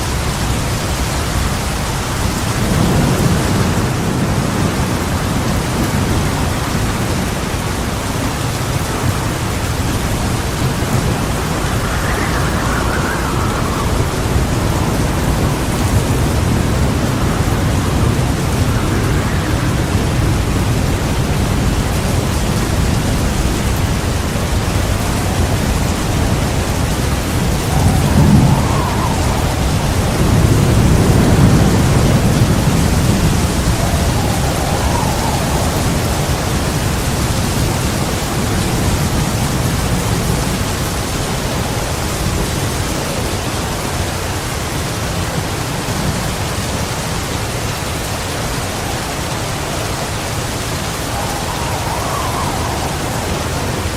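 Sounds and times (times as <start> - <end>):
thunder rumbling: 0.0 - 43.7, 47.4 - 53.9
heavy rain falling: 0.0 - 53.9.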